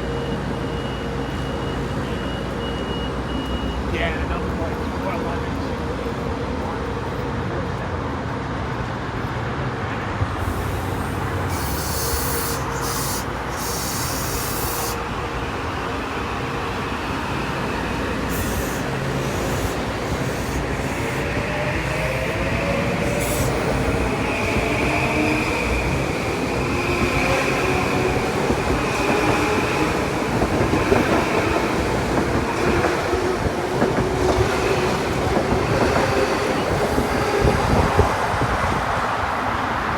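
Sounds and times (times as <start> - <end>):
train wheels rumbling on rails: 0.0 - 39.9
thin wheel squeal: 11.5 - 15.0.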